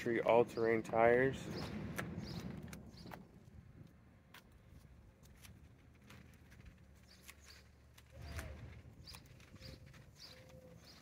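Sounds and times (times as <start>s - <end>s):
small bird chirps: 7.0s - 11.0s.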